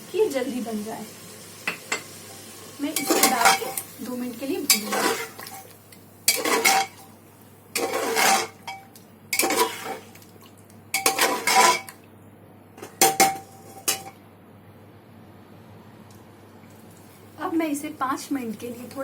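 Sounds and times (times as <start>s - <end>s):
metal spoon scraping a pot: 4.7s - 5.7s, 6.3s - 7.0s, 7.8s - 8.8s, 9.4s - 10.1s, 11.0s - 12.0s.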